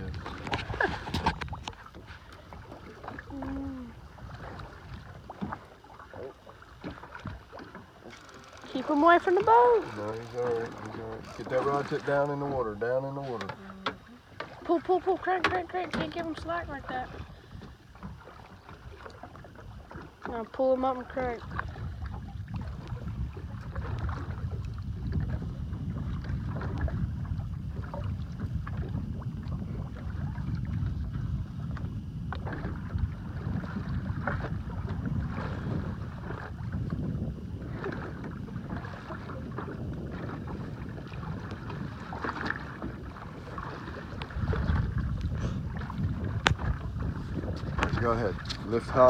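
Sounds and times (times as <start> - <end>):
water splashes: 0.0 - 49.0
wind rumbling on microphone: 0.0 - 49.0
knocks on boat: 13.2 - 16.6, 45.8 - 48.7.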